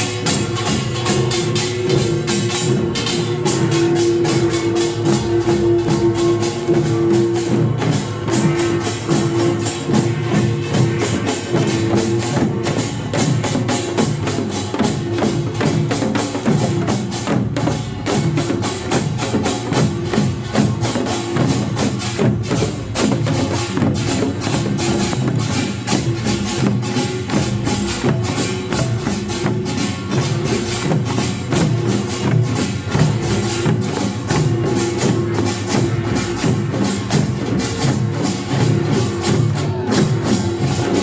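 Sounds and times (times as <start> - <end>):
large gong: 0.0 - 15.8
drums: 0.0 - 41.0
small gongs clanging: 0.0 - 41.0.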